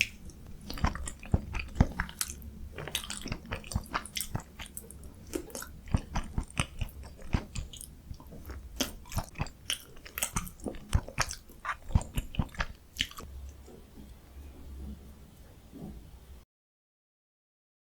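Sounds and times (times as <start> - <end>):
person chewing with mouth smacks: 0.0 - 14.2.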